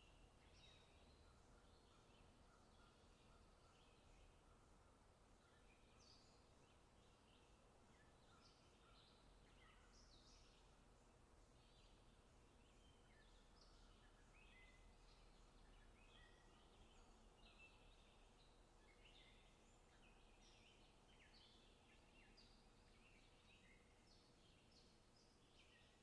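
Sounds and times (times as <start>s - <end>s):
steady low hiss: 0.0s - 26.0s.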